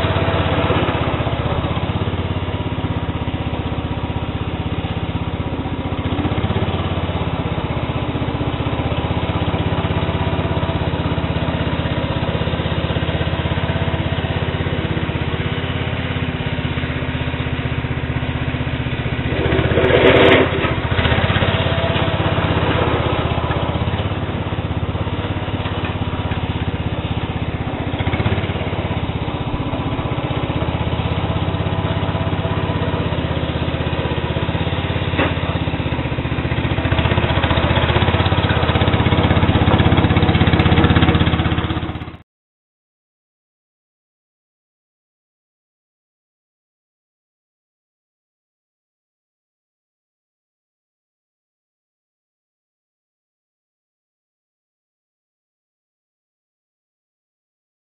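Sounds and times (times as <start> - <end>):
small engine running: 0.0 - 42.2.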